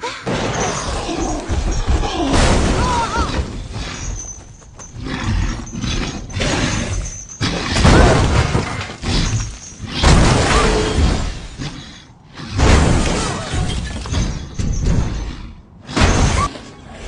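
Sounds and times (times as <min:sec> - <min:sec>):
loud crashing and smashing: 0:00.2 - 0:03.8, 0:07.5 - 0:11.6, 0:12.6 - 0:15.2.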